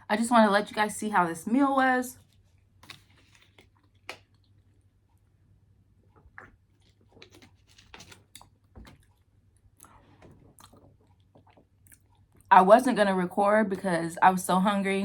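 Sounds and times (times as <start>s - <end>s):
faint chewing mouth clicks: 6.1s - 12.5s.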